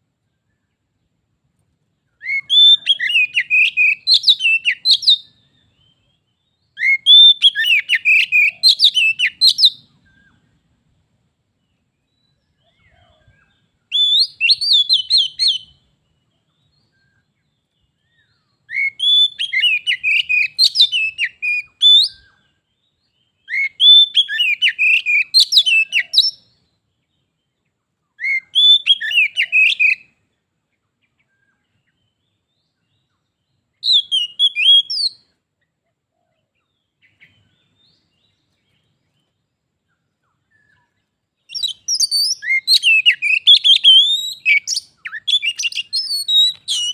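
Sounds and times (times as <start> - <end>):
bird singing whistled phrases: 2.1 - 10.5, 13.2 - 15.9, 18.0 - 26.6, 28.2 - 30.2, 33.8 - 35.3, 40.4 - 46.9.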